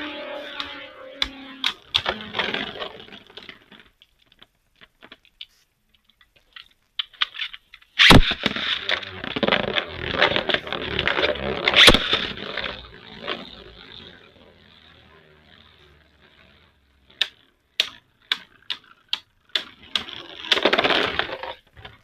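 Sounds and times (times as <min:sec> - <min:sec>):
spinning tops scraping and clicking: 0:00.0 - 0:04.4, 0:05.0 - 0:22.0
sharp crack: 0:06.8 - 0:22.0.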